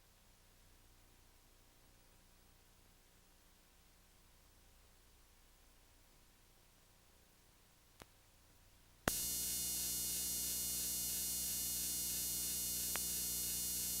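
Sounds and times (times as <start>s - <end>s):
faint tape hiss: 0.0s - 14.0s
loud hiss and buzzing hum: 9.0s - 14.0s.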